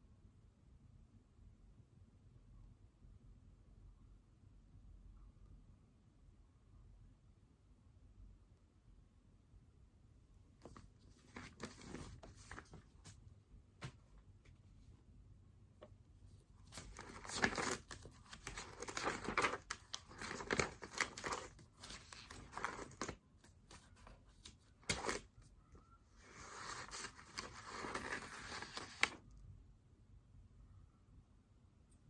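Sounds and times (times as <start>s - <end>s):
paper rustling: 10.6s - 13.2s, 15.8s - 25.4s, 26.2s - 29.2s.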